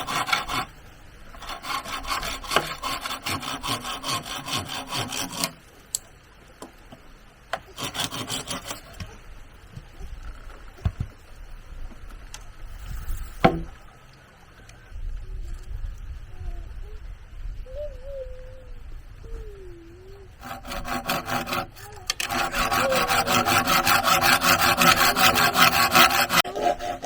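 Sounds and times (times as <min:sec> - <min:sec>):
hand saw cutting bamboo: 0:00.0 - 0:00.7, 0:01.4 - 0:05.6, 0:07.6 - 0:09.0, 0:20.4 - 0:27.0.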